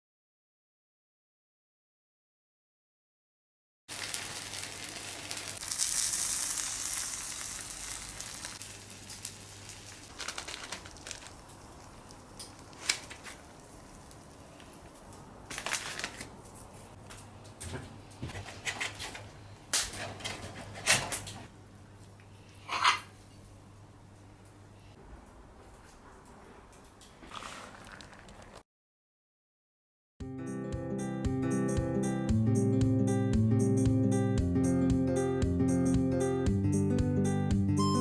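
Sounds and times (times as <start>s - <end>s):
food sizzling: 3.9s - 15.8s.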